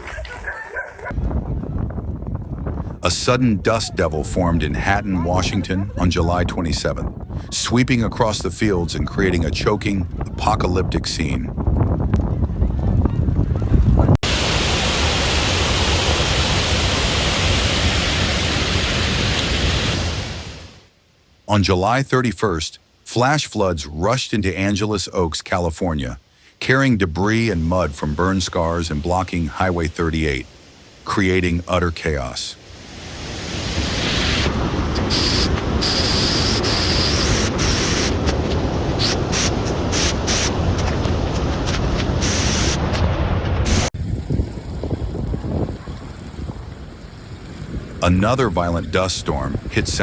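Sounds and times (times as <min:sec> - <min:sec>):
strong wind buffeting microphone: 0:01.0 - 0:20.4, 0:32.7 - 0:50.0
flood water rushing: 0:14.2 - 0:20.9.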